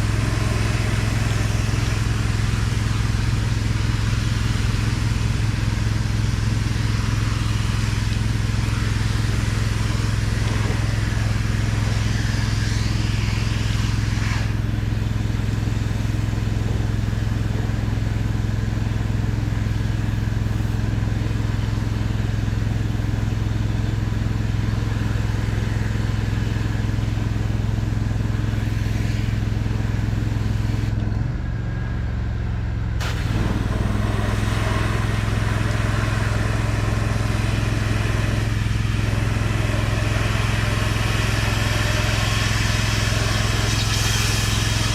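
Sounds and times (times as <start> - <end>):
pressure washer engine humming: 0.0 - 31.1, 32.8 - 44.9
water spray hissing: 33.0 - 44.9.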